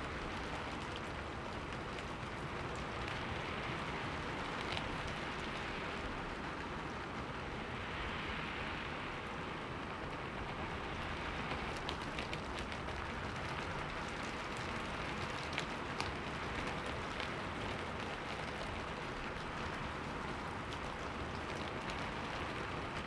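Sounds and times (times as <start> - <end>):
rain on a window pane: 0.0 - 23.0
raindrops ticking on glass: 10.9 - 23.0.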